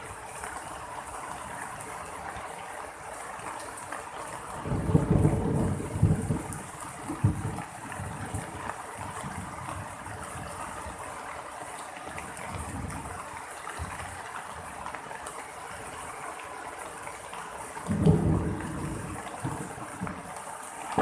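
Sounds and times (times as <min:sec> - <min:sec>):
steady rain falling: 0:00.0 - 0:21.0
thunder clap: 0:04.8 - 0:08.3, 0:17.9 - 0:20.2.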